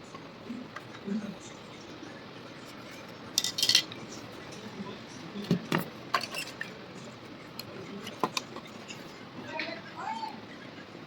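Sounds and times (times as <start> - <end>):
small tools clinking and tapping: 3.4 - 4.0.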